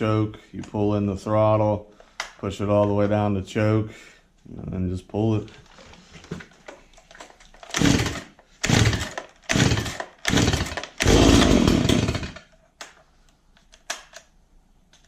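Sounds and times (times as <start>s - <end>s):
recoil starter pulls: 7.6s - 12.5s
chainsaw engine firing briefly: 7.8s - 12.4s.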